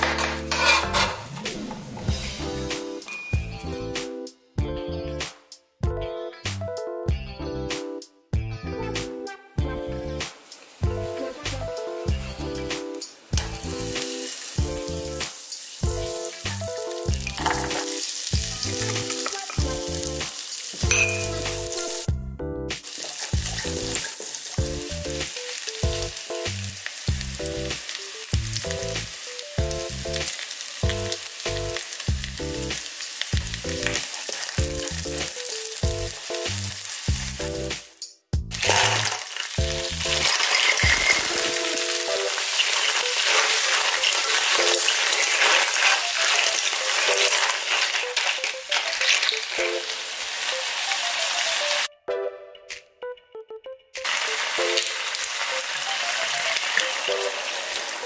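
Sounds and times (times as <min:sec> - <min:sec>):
background music: 0:00.0 - 0:58.0
butter and garlic sizzling: 0:09.8 - 0:22.1, 0:22.8 - 0:51.9, 0:54.0 - 0:58.0
spatula stirring: 0:42.4 - 0:49.4.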